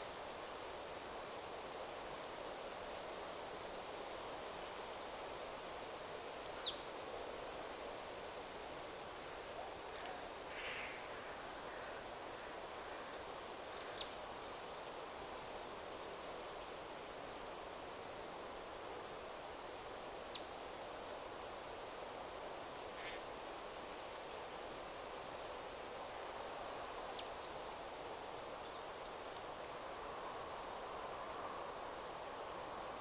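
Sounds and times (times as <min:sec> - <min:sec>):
wind rustling through trees: 0:00.0 - 0:33.0
faint rough bird call: 0:09.6 - 0:13.1.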